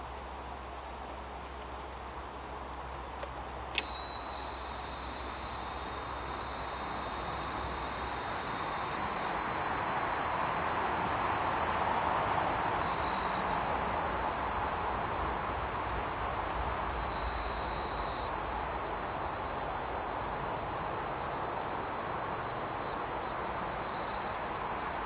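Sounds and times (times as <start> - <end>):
detector switch click: 3.2 - 4.4
high-pitched electronic tone: 3.8 - 25.0.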